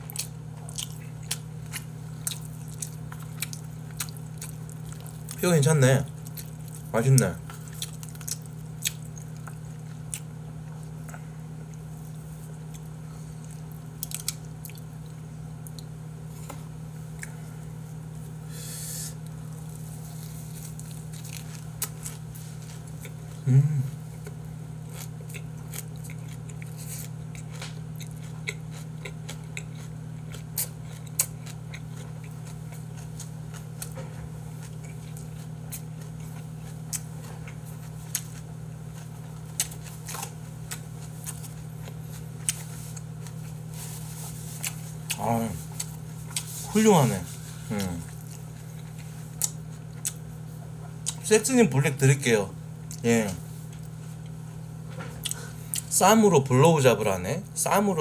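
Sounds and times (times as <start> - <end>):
wet chewing and smacking: 0.0 - 5.4, 6.1 - 17.3, 20.6 - 23.4, 24.2 - 46.6, 47.8 - 51.3, 55.2 - 55.9
steady low hum: 0.0 - 58.0.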